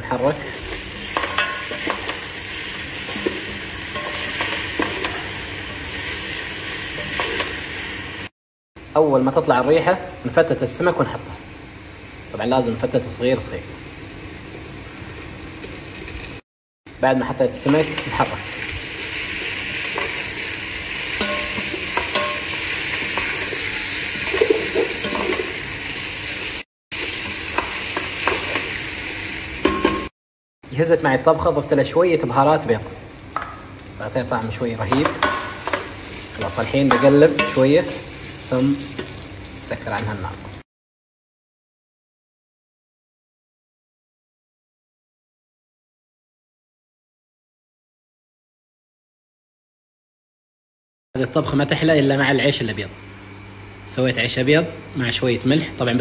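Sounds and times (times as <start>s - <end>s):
onions sizzling in oil: 0.1s - 8.3s, 10.7s - 30.1s, 32.6s - 40.6s.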